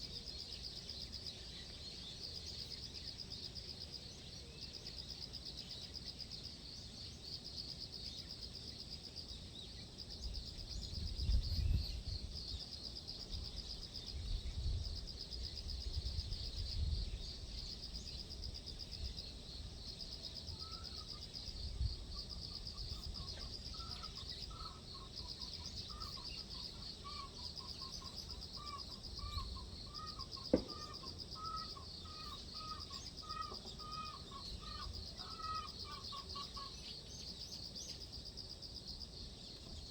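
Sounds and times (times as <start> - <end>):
insects trilling: 0.0 - 39.9
wind gusts on microphone: 10.8 - 12.4.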